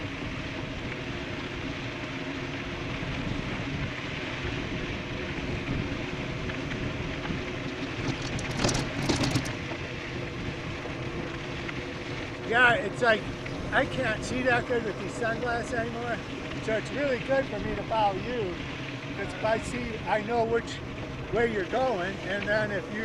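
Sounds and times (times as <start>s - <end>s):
bike tyre noise: 0.0s - 23.0s
rattling knocks: 7.7s - 9.6s.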